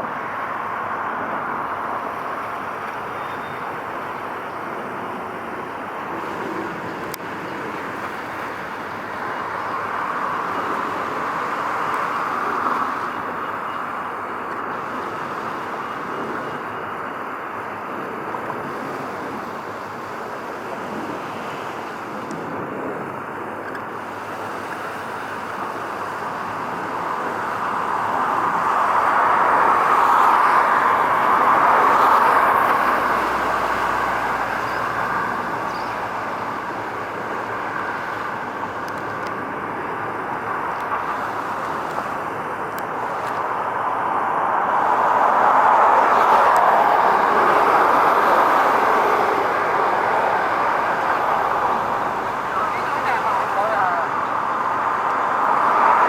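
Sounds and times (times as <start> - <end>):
road traffic: 0.0 - 56.0
wind: 0.0 - 56.0.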